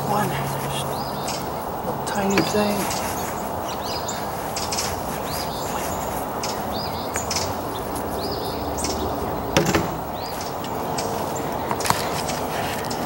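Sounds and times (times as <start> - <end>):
outdoor background noise: 0.0 - 13.0
sharp knock: 9.6 - 10.0.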